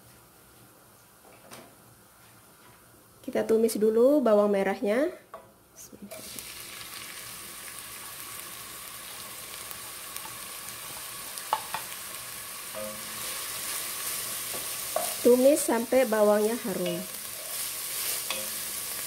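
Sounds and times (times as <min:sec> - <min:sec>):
shallots sizzling in hot oil: 0:06.1 - 0:19.0.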